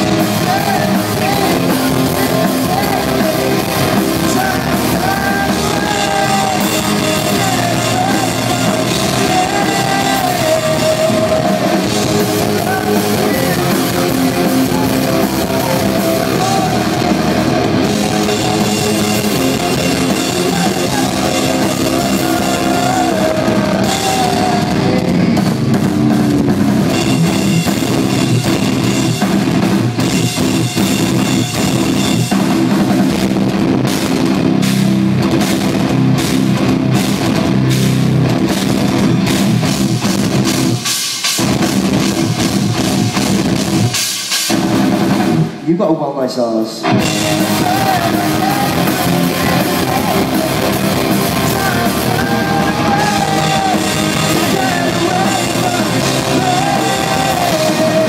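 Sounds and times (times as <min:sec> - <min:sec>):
sung vocals: 0:00.0 - 0:29.2, 0:45.6 - 0:58.0
distorted electric guitars: 0:00.0 - 0:45.8, 0:46.7 - 0:58.0
drum kit: 0:00.0 - 0:58.0.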